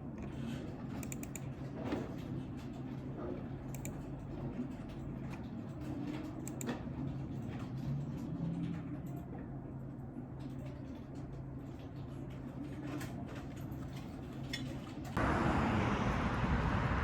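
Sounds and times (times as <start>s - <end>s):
keyboard and mouse clicks: 1.0s - 1.5s, 3.7s - 4.0s, 6.4s - 6.8s.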